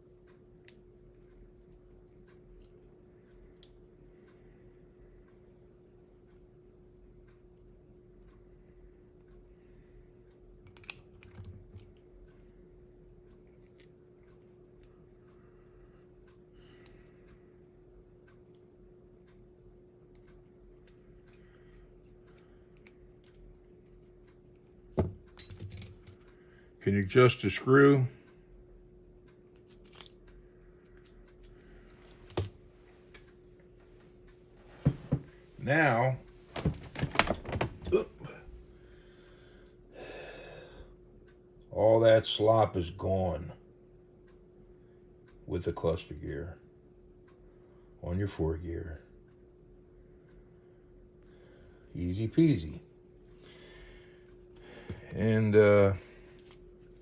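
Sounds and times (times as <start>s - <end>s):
faint steady hum: 0.0s - 57.0s
small parts clicking and tapping: 10.6s - 12.4s, 13.3s - 15.4s, 20.1s - 26.4s, 29.3s - 33.3s, 56.3s - 56.7s.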